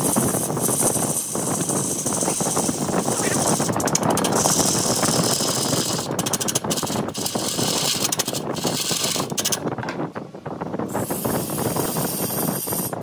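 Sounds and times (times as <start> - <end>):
chisel cutting wood on a lathe: 0.0 - 9.3.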